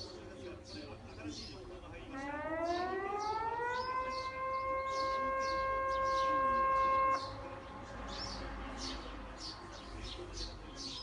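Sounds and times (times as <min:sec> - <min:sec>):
warning siren: 0:02.1 - 0:07.4.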